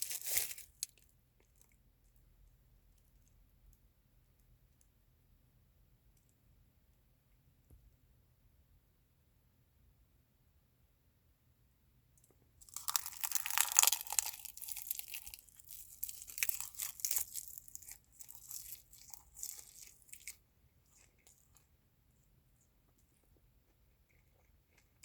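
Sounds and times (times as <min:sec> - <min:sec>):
crunchy chewing of food: 0:00.0 - 0:02.2, 0:12.6 - 0:25.0.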